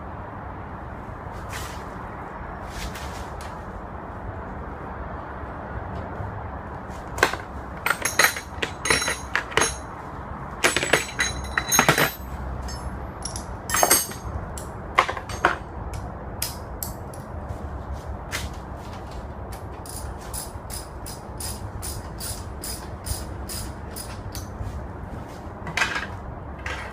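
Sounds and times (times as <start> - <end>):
metal tools clanking: 7.8 - 9.9, 10.6 - 15.6.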